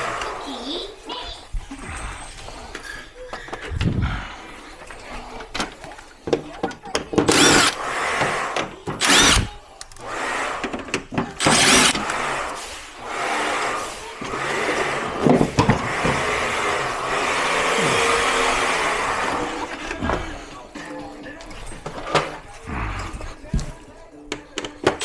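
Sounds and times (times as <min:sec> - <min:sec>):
cordless power drill running: 0:07.2 - 0:10.7, 0:11.4 - 0:19.7.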